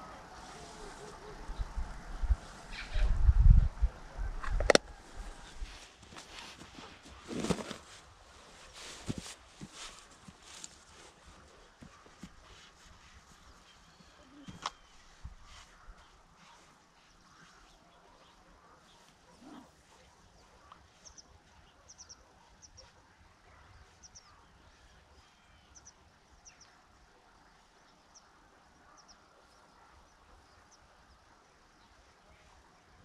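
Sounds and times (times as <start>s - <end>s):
faint high bird chirps: 13.5s - 23.0s.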